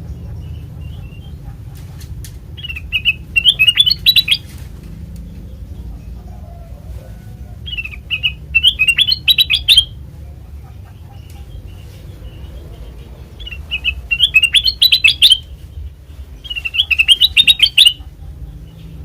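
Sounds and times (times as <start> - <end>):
bird chirping: 2.5 - 4.6, 7.6 - 19.0.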